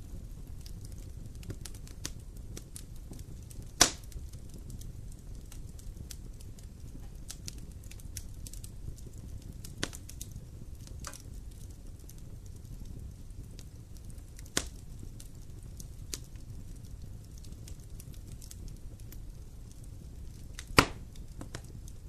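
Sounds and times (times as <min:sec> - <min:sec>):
flames rumbling: 0:00.0 - 0:22.0
wood crackling in campfire: 0:00.0 - 0:22.0
loud fire pop: 0:03.8 - 0:04.1, 0:20.6 - 0:21.7.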